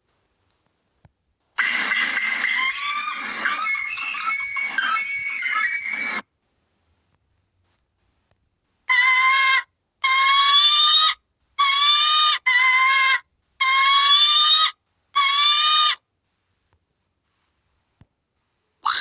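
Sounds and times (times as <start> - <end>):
bird calling drawn-out cries: 1.6 - 6.2, 8.9 - 16.0.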